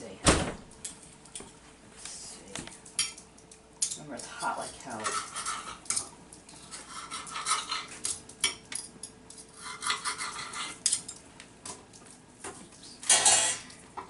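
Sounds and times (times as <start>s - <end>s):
knife and fork scraping on plate: 4.4s - 8.6s, 9.4s - 11.1s, 13.0s - 13.8s.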